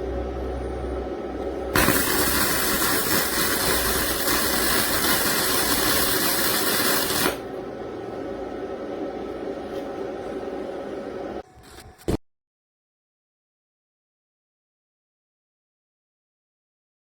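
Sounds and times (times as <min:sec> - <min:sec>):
electric welding arc hissing: 0:01.7 - 0:07.5.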